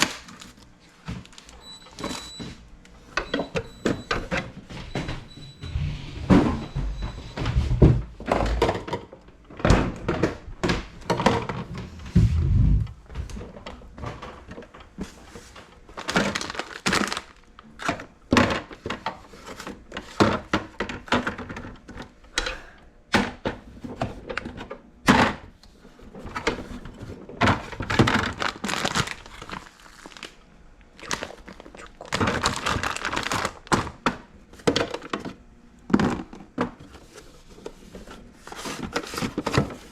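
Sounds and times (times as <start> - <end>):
rustling and scrubbing: 11.6 - 13.4.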